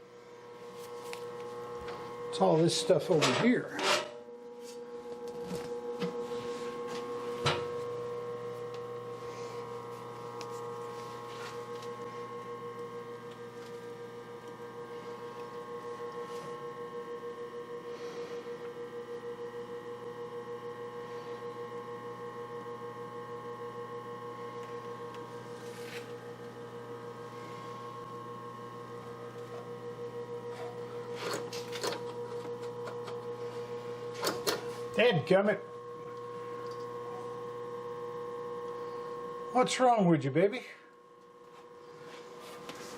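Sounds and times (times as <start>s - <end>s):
grinder motor hum and whine: 0.0s - 42.9s
lower electrical hum: 0.0s - 42.9s.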